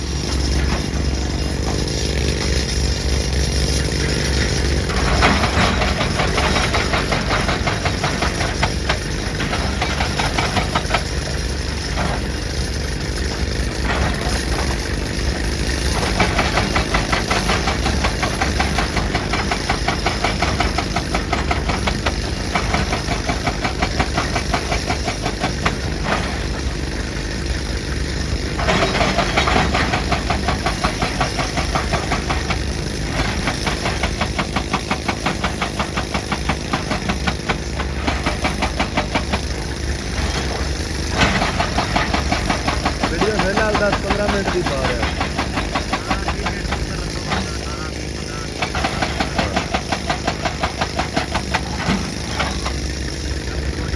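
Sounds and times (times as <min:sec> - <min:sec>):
excavator diesel engine: 0:00.0 - 0:53.9
hydraulic breaker hammering rock: 0:00.0 - 0:53.9.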